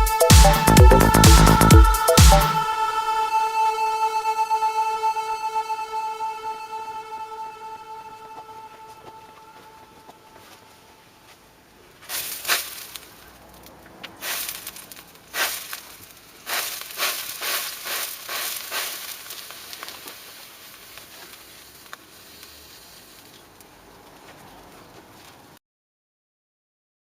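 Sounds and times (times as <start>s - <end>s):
fire crackling and hissing: 11.7s - 25.6s.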